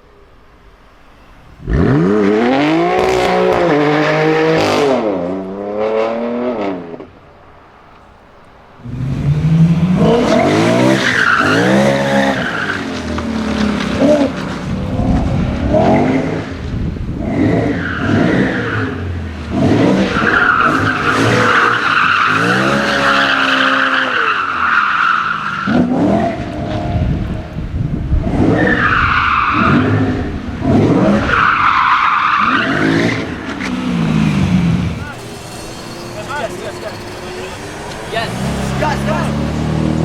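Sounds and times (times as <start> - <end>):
car engine revving: 1.5 - 40.0
tyres squealing: 7.6 - 25.8, 30.8 - 40.0.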